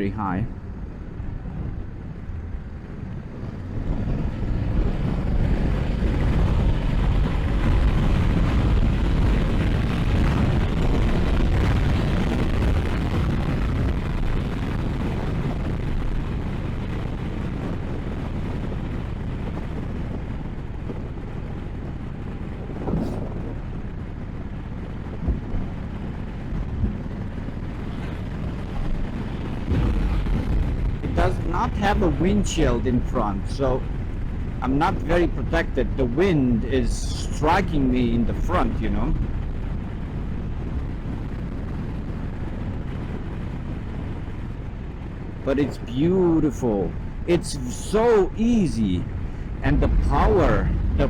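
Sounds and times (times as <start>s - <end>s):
wind rushing over camera: 0.0s - 51.0s.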